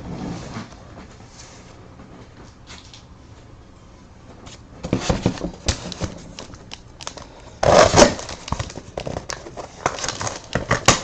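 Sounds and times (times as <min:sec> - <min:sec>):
cardboard clicking and scraping: 0:04.8 - 0:11.0
packaging crinkling: 0:05.0 - 0:11.0
packaging tearing: 0:05.6 - 0:11.0.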